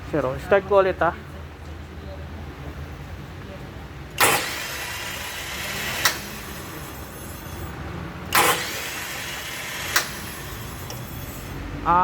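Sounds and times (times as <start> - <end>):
steady mechanical noise: 2.4 - 12.0
starter motor engaging: 4.2 - 6.7, 8.3 - 11.5.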